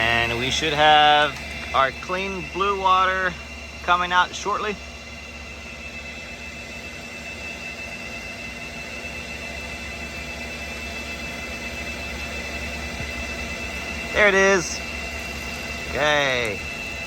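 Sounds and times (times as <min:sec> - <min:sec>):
machine whirring with high whine: 0:00.0 - 0:17.0.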